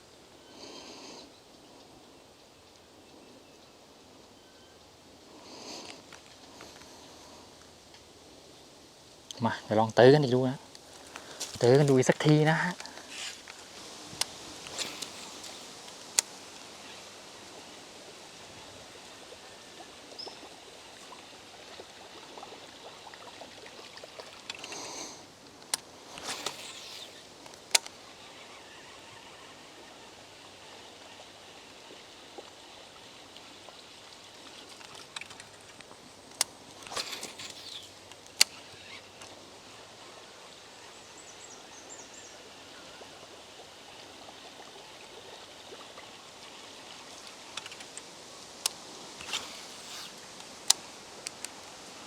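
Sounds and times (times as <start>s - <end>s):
outdoor background hiss: 0.0s - 52.0s
fishing reel clicks: 14.2s - 17.0s, 24.2s - 29.4s, 34.5s - 39.4s, 47.2s - 51.6s.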